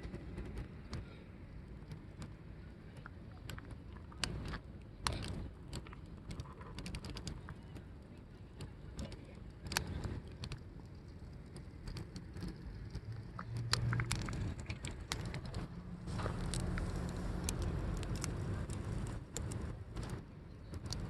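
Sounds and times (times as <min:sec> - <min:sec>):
wood fire crackling: 0:00.5 - 0:21.0.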